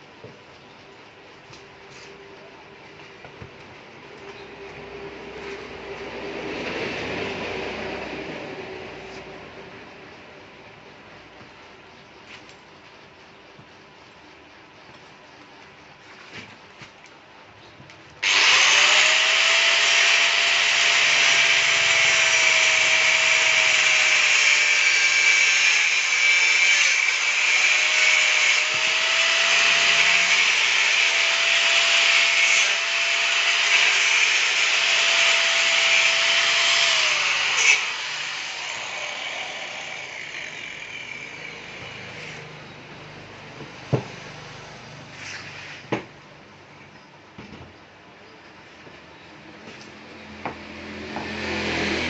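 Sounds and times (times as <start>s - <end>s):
power tool motor whine: 18.2s - 42.5s.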